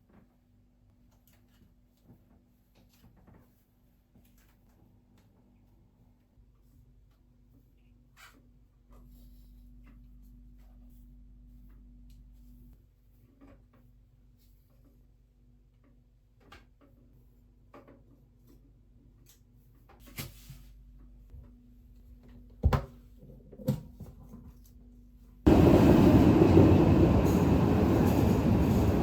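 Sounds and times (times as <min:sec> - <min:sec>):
train rumbling: 0:25.5 - 0:29.0.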